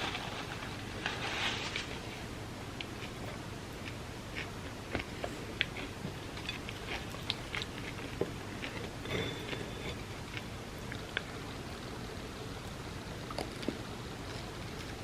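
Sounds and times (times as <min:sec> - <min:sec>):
background hiss and hum: 0:00.0 - 0:15.0
close chewing with wet mouth clicks: 0:02.8 - 0:12.0, 0:12.6 - 0:15.0.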